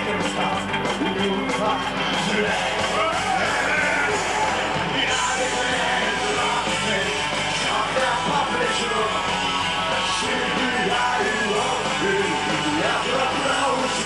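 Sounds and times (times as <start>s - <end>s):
punk rock band playing: 0.0s - 14.0s
people yelling: 2.2s - 6.7s.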